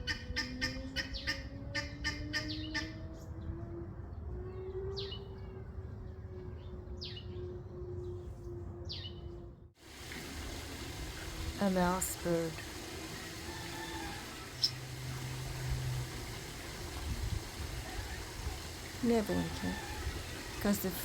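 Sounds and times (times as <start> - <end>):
faint rising hum: 0.0 - 21.0
downward-sweeping bird chirps: 0.1 - 3.5, 4.4 - 8.2, 8.8 - 9.3
birds chattering: 11.9 - 16.9.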